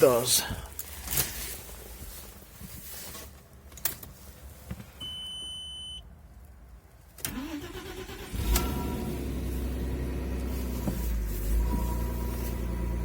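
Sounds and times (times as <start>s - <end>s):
engine starter cranking: 7.2s - 9.4s
car engine idling: 7.3s - 13.0s.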